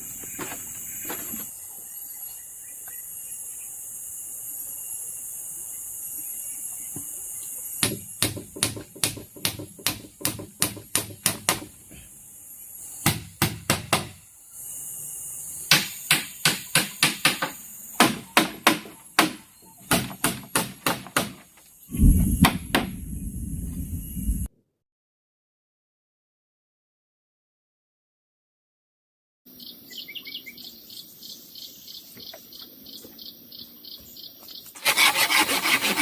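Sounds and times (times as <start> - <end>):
hand tool striking bamboo: 7.8 - 11.7, 15.7 - 21.5
loud low rumble: 21.9 - 24.5.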